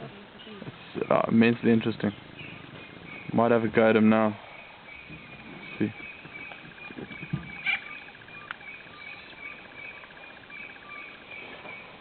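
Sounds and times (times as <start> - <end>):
pulsed high chirping: 2.1 - 3.7, 4.3 - 12.0.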